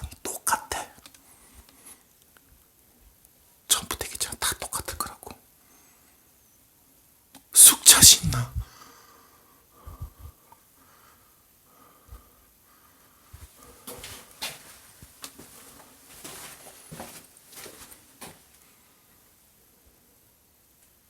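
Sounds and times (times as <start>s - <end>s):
scuffing and rustling: 13.4s - 18.6s.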